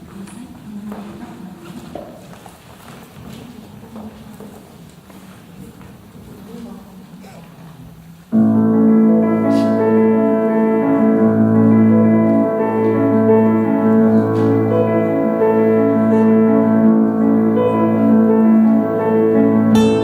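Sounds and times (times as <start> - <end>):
keyboard playing held chords: 8.4 - 20.0.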